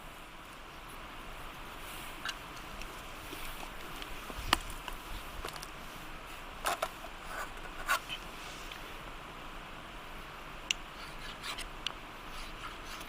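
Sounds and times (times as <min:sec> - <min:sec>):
campfire hissing and crackling: 0:00.0 - 0:13.0
fire popping: 0:02.2 - 0:05.8.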